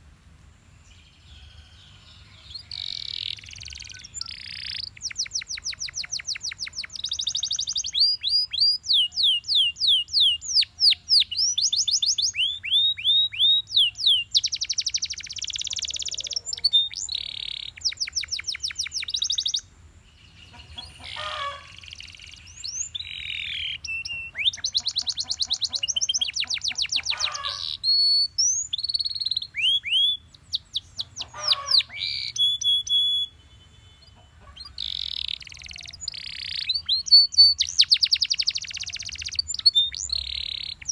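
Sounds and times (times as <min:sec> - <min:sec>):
canary singing: 0:00.9 - 0:40.9.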